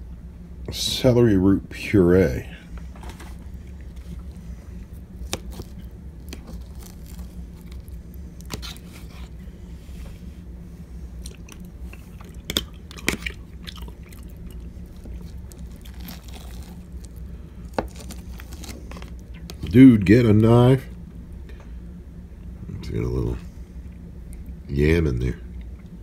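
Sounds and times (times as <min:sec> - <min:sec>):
low steady hum: 0:00.0 - 0:26.0
person chewing and eating: 0:03.4 - 0:09.6, 0:11.0 - 0:19.6.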